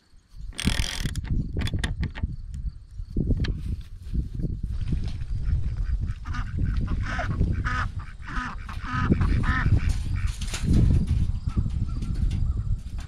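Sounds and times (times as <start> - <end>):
birds calling: 5.3 - 13.0.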